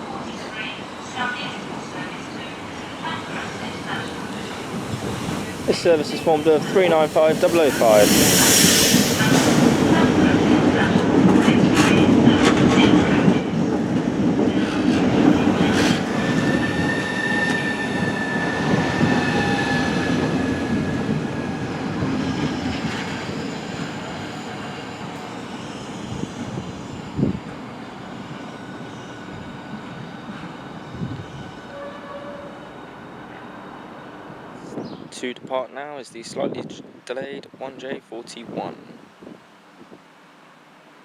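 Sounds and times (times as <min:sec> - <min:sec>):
train running noise: 0:00.0 - 0:35.0
train brake squeal: 0:06.2 - 0:10.2, 0:15.8 - 0:21.1.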